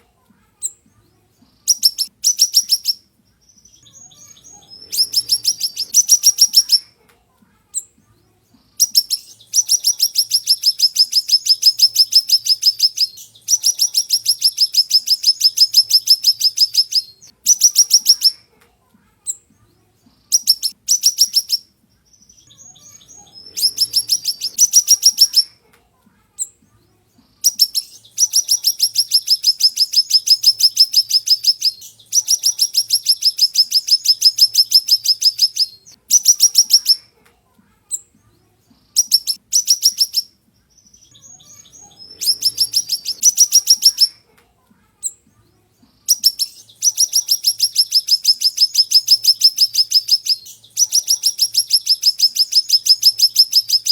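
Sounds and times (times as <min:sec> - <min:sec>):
songbird high rapid trill: 0:03.6 - 0:06.8, 0:22.6 - 0:25.5, 0:41.0 - 0:44.2, 0:46.1 - 0:53.9.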